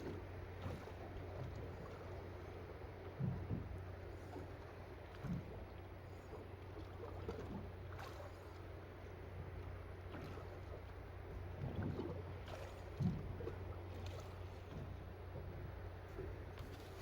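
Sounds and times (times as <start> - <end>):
boat engine hum: 0.0 - 17.0.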